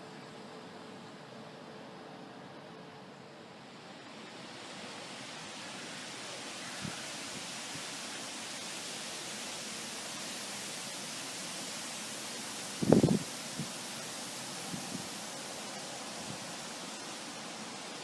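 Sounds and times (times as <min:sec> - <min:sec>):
gust of wind: 0:12.8 - 0:13.7, 0:14.6 - 0:15.2.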